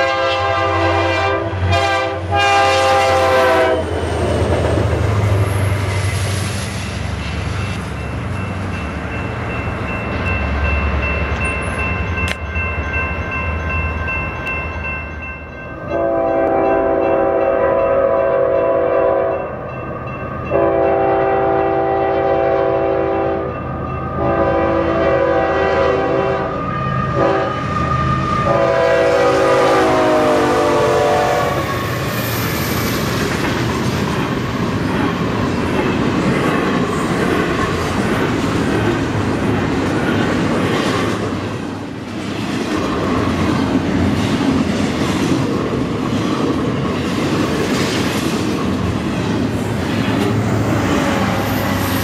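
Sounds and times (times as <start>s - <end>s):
train horn blasts: 0.0s - 4.0s, 15.9s - 19.5s, 20.5s - 23.6s, 24.2s - 31.9s
train cars rumbling and clattering: 0.0s - 52.0s.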